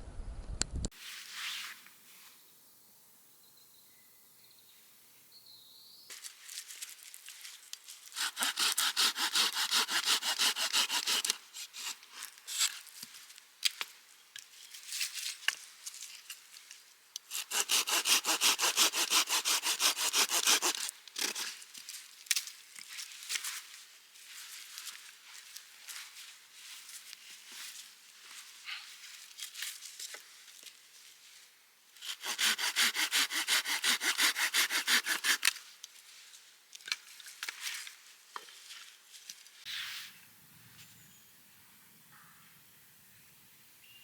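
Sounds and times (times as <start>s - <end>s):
hand saw cutting wood: 8.1s - 12.8s, 17.2s - 21.6s, 32.0s - 35.6s.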